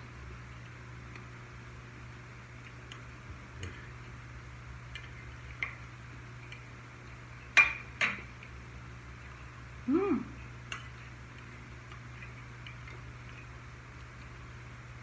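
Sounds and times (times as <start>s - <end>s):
steady low hum: 0.0s - 15.0s
faint eating clicks and taps: 0.5s - 1.3s, 2.5s - 4.2s, 4.8s - 8.6s, 10.6s - 14.6s.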